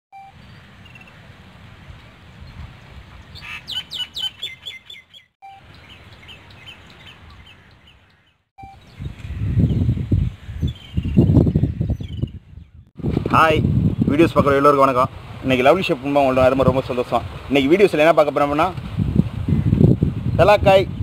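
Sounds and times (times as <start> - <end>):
bird chirping: 1.9 - 12.9.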